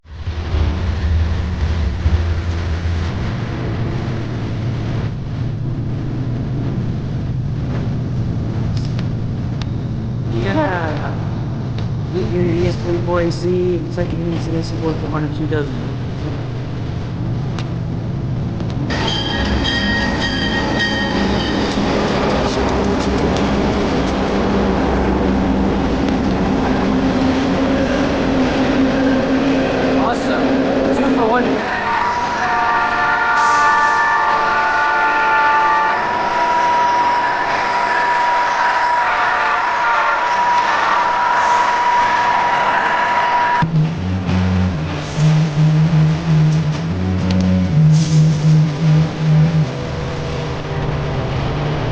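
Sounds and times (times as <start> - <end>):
heavy engine humming: 0.0 - 51.9
train wheels rushing on rail: 18.6 - 43.9.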